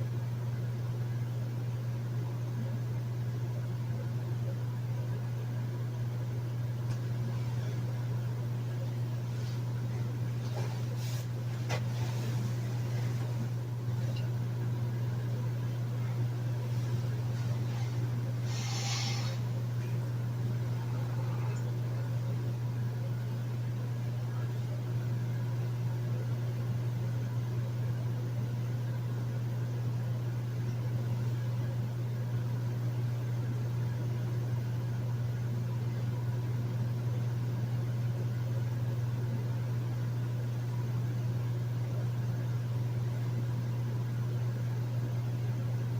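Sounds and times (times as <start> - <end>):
air conditioner humming: 0.0 - 45.9
short high hiss: 18.4 - 19.6.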